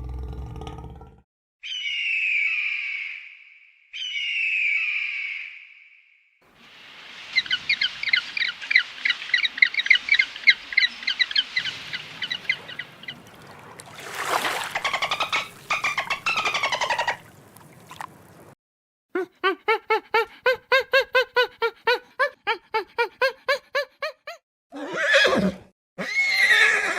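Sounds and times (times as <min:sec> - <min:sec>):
bird chirping rapidly: 0:04.0 - 0:05.4, 0:07.3 - 0:13.3, 0:14.6 - 0:17.4
bird call of fast pulses: 0:07.2 - 0:18.4.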